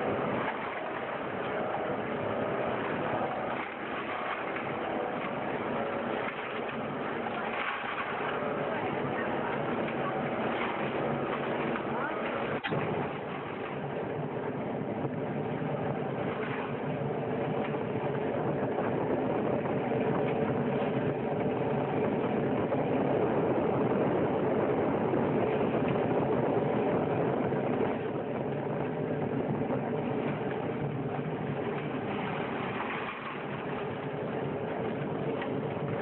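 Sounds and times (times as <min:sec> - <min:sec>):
industrial machine running: 0:00.0 - 0:26.6.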